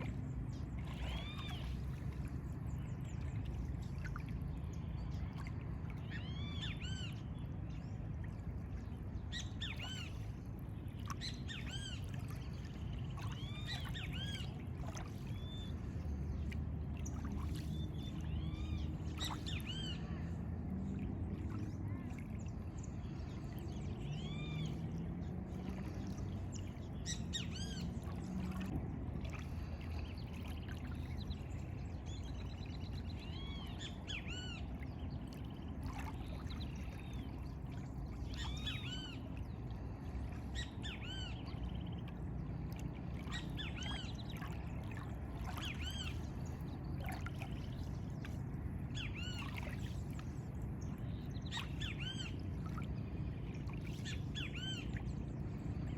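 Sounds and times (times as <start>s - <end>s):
birds calling: 43.1s - 55.9s.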